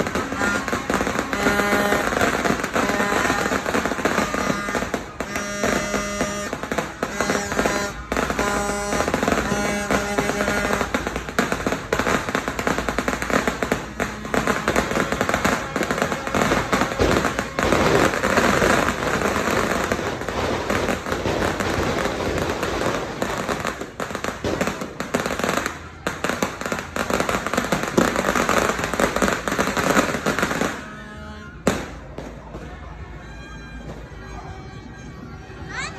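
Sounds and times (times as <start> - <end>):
firecrackers crackling: 0.0 - 34.3
single firecracker bang: 16.5 - 23.6.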